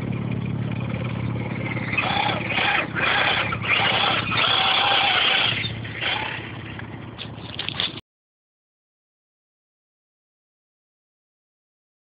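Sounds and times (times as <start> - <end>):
electric motor whining: 1.4 - 6.8.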